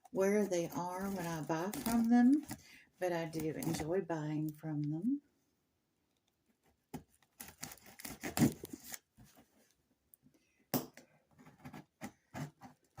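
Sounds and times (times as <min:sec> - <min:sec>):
cardboard tearing and rustling: 0:00.4 - 0:02.6, 0:07.3 - 0:09.2.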